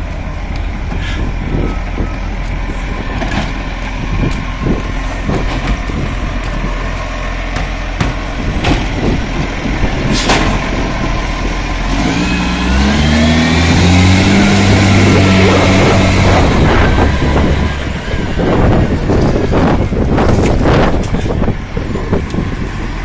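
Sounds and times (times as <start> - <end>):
garbage truck engine revving: 0.0 - 23.0
metal clanks and knocks: 7.5 - 9.2, 10.0 - 10.9.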